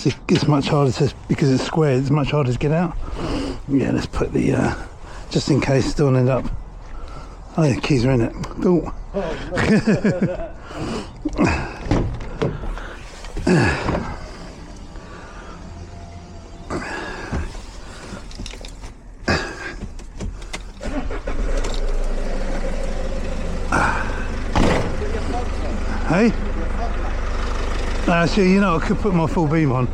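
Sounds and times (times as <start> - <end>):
car engine starting and idling: 0.0 - 29.9
short clicks knocks and rattles: 16.5 - 23.7.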